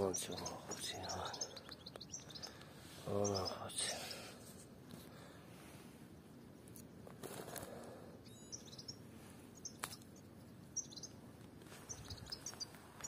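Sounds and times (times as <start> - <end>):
small birds chirping: 0.0 - 5.2, 6.1 - 13.0
soft rustle: 3.9 - 8.0, 11.2 - 13.0.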